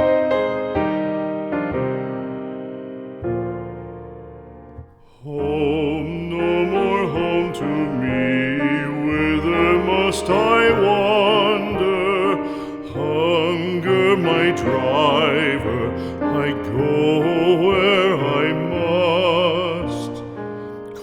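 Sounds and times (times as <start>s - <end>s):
slow piano music: 0.0s - 21.0s
person singing with vibrato: 5.0s - 21.0s.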